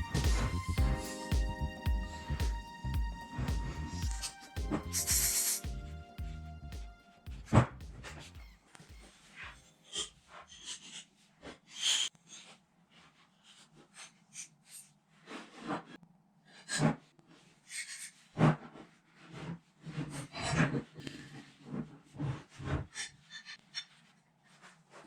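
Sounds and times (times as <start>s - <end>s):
brief hiss: 0.0s - 6.1s.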